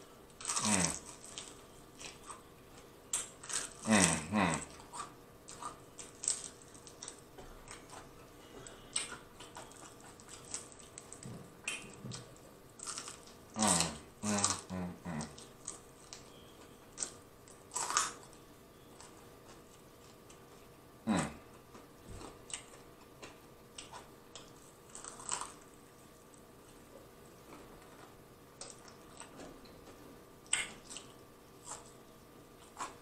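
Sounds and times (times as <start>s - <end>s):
crunchy biting and chewing: 0.0s - 20.4s, 21.1s - 33.0s
person humming murmurs: 0.6s - 1.0s, 3.8s - 4.7s, 13.6s - 15.4s, 21.0s - 21.5s.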